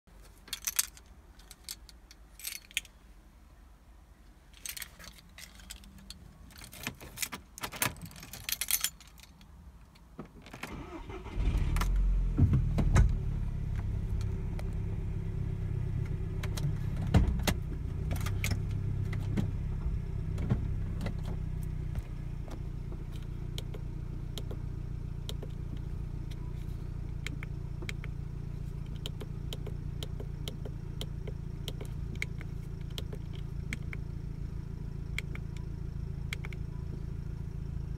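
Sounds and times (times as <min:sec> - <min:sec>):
car keys jangling and clicking: 0:00.3 - 0:03.0, 0:04.5 - 0:11.9, 0:18.1 - 0:19.3, 0:22.5 - 0:34.2
car engine cranking and starting: 0:10.5 - 0:37.9
car engine idling: 0:10.7 - 0:37.9.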